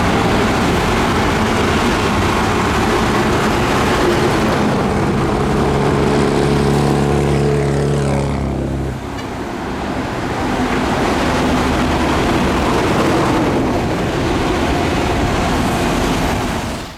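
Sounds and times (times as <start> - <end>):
rough noisy machine: 0.0 - 16.5
heavy diesel engine droning: 0.0 - 16.9.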